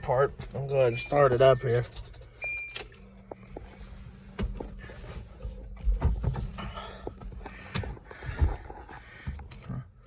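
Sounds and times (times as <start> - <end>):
fuel pump humming: 0.0 - 10.0
knocks and rustling: 5.4 - 9.5.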